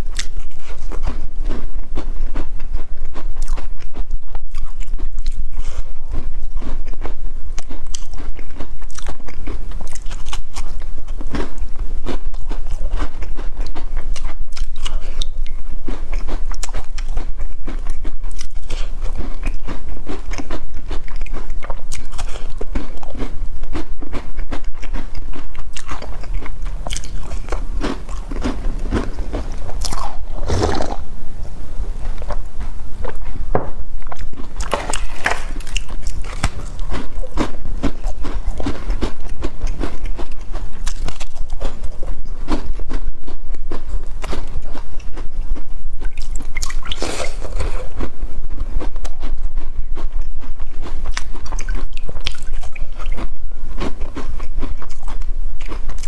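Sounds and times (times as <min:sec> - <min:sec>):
biscuits crunching: 0:00.0 - 0:31.1, 0:32.0 - 0:56.0
slurp from bowl: 0:30.1 - 0:31.1, 0:46.9 - 0:47.9.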